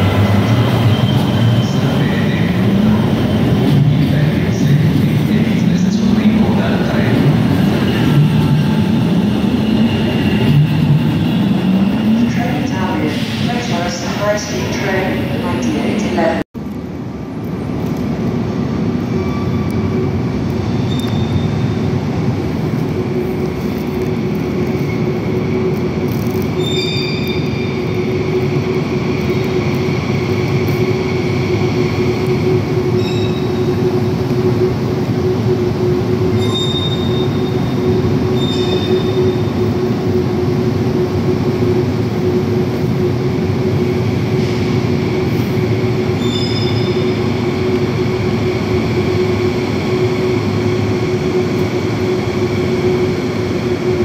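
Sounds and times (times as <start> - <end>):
train rumbling: 0.0 - 54.0
high-pitched wheel squeals: 26.6 - 27.7, 33.0 - 33.5, 36.4 - 37.5, 38.3 - 39.3, 46.2 - 47.1.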